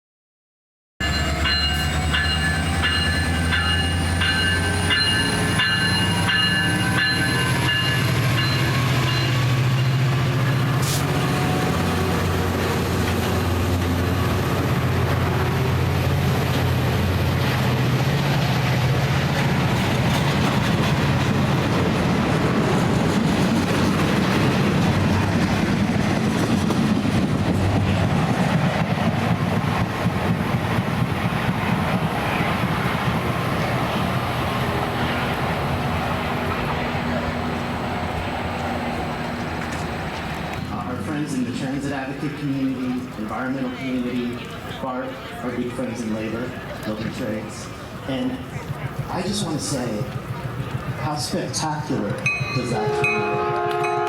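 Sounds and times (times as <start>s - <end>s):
train rumbling: 1.0s - 54.0s
rapid repeated ringing: 52.2s - 54.0s.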